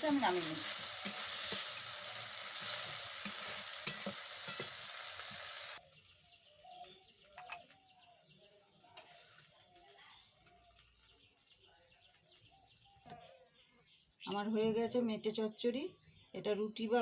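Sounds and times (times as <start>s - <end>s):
food sizzling in a pan: 0.0s - 7.3s, 8.7s - 11.1s.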